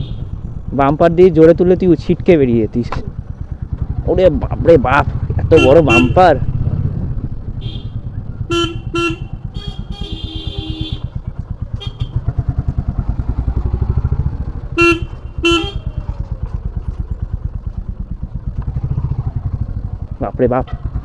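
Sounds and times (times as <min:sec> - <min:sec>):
motorcycle engine thumping: 0:02.7 - 0:21.0
horn beeps: 0:05.5 - 0:06.3, 0:14.7 - 0:16.0.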